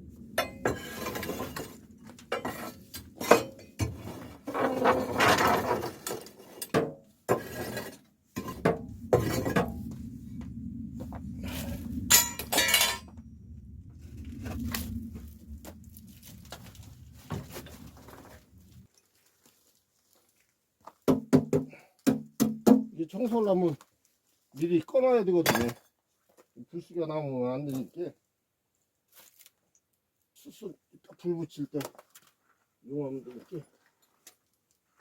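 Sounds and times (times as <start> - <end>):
clinks of scrap metal: 0.4 - 4.0, 12.1 - 13.1
ash being scraped and raked: 7.3 - 9.9.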